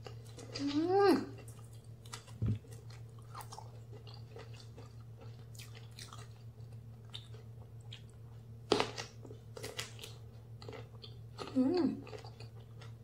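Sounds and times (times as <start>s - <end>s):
steady low hum: 0.0s - 13.0s
chewing with wet mouth clicks: 1.4s - 8.2s.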